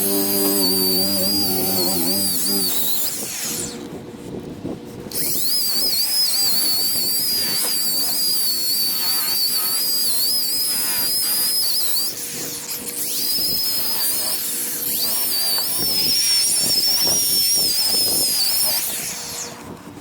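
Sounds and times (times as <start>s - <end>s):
electric buffer motor whine: 0.0s - 3.8s.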